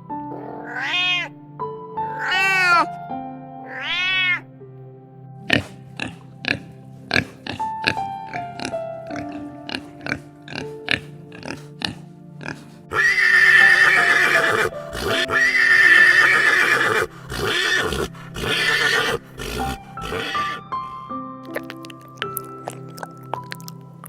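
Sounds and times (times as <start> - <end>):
light plucked background music: 0.0 - 24.0
horse whinnying: 0.6 - 1.3, 2.2 - 2.9, 3.7 - 4.4, 12.9 - 20.6.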